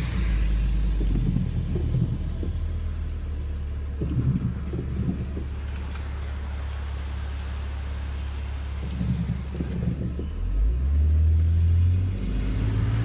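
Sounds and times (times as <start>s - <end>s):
car engine accelerating: 0.0s - 13.0s
tyres hissing on wet road: 5.5s - 9.9s.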